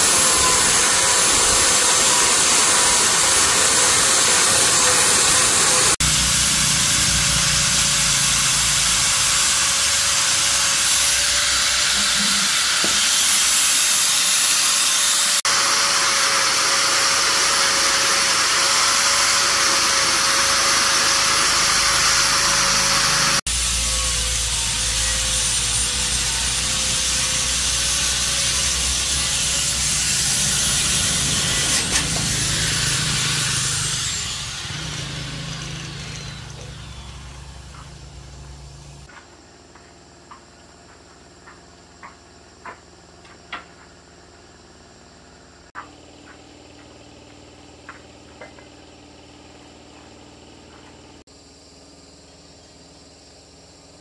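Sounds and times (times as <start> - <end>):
hissing machine noise: 0.0 - 42.2.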